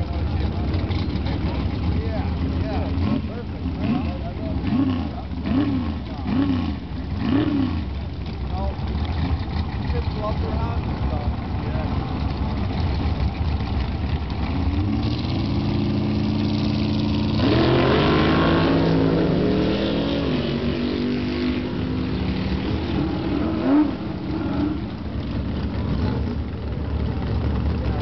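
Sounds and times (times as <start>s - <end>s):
drag car engine revving: 0.0s - 28.0s.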